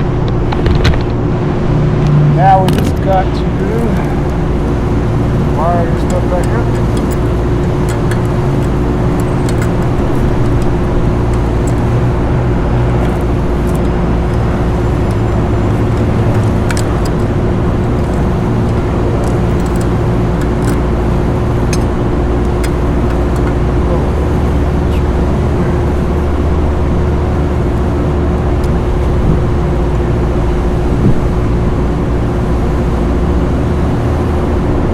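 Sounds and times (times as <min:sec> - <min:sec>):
hvac equipment droning: 0:00.0 - 0:34.9
faint handling clicks: 0:02.0 - 0:26.4.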